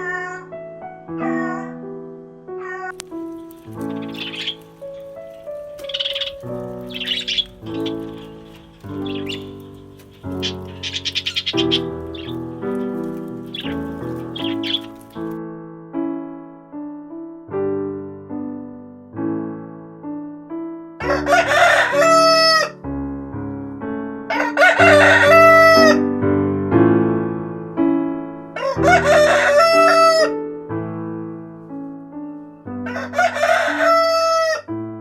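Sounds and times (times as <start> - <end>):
soft piano music: 0.0 - 35.0
rooster crowing: 5.9 - 9.7, 10.4 - 12.4, 21.1 - 22.8, 24.3 - 26.0, 28.6 - 30.3, 32.8 - 34.7.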